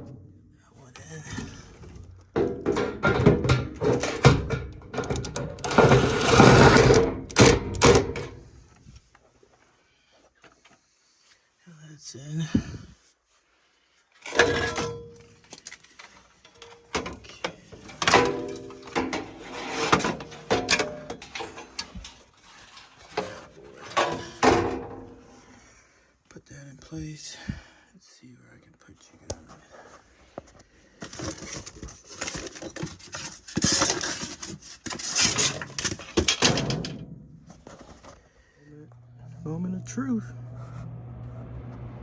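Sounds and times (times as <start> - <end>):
metal scraping: 1.1 - 8.7, 16.5 - 25.0, 38.8 - 42.0
metal clanks and tool clicks: 1.4 - 8.5, 14.2 - 25.0, 31.1 - 37.1
sheet metal knocking and rattling: 2.3 - 8.4.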